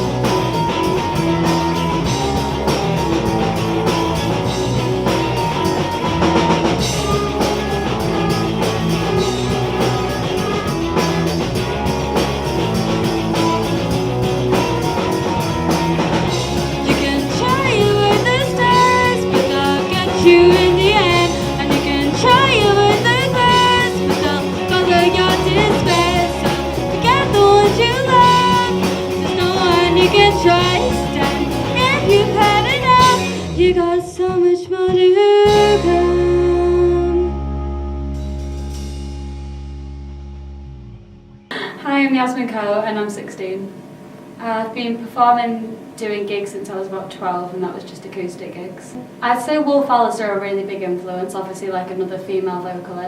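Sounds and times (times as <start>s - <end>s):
rock band playing: 0.0s - 34.0s, 35.4s - 41.6s
woman singing: 16.7s - 37.5s.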